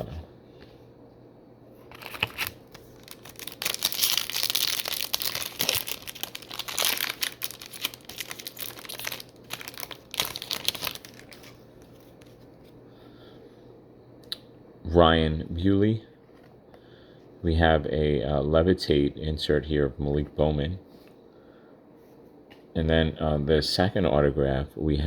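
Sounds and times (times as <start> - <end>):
card pack wrapper crinkling and tearing: 1.9 - 12.3.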